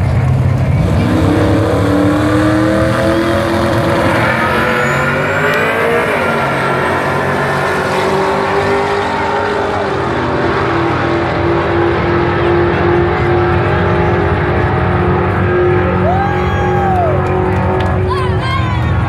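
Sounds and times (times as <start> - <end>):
racing car engines droning: 0.0 - 19.0
whistle-like tone: 4.6 - 5.6.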